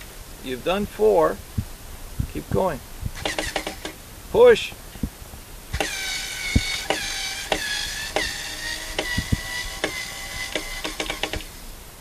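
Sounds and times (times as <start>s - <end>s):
screw squeaking into wood: 3.2s - 4.0s, 5.8s - 11.5s.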